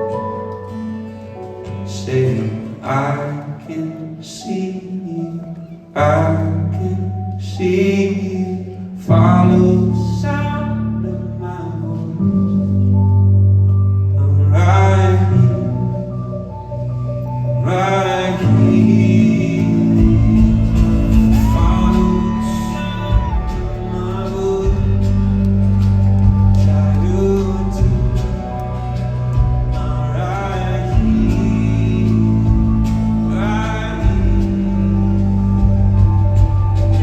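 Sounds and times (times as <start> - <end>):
keyboard chords: 0.0 - 37.0
steady bass: 9.1 - 37.0
man singing long notes: 17.5 - 36.2.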